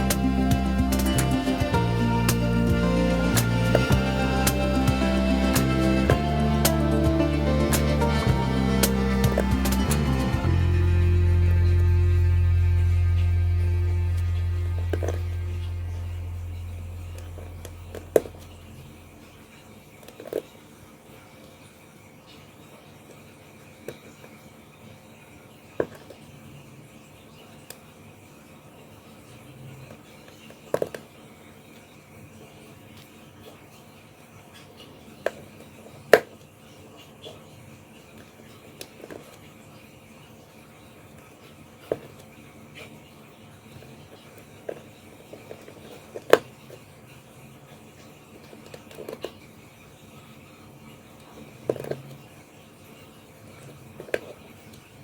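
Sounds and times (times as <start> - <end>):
faint room hiss: 0.0 - 55.0.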